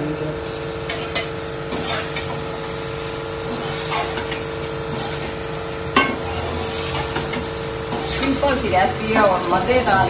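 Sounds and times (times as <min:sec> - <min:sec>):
steady hum: 0:00.0 - 0:10.0
vegetables sizzling in a pan: 0:00.0 - 0:10.0
metal spatula scraping a pan: 0:00.9 - 0:02.4, 0:03.5 - 0:05.3, 0:06.0 - 0:09.6
spatula knocking on pan: 0:06.0 - 0:06.2.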